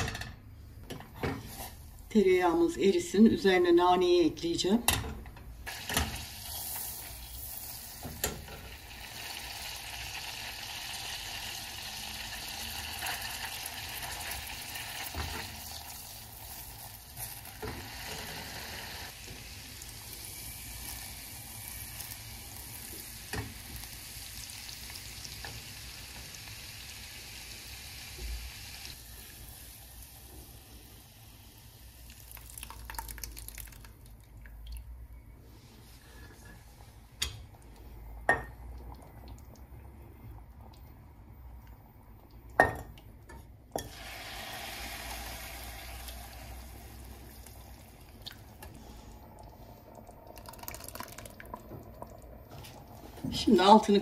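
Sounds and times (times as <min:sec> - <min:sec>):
butter sizzling in a pan: 0:05.7 - 0:32.0, 0:43.8 - 0:47.7.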